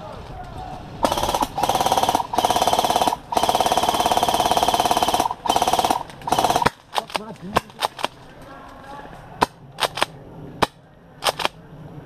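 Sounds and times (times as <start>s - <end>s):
airsoft gun firing full auto: 1.0s - 8.1s.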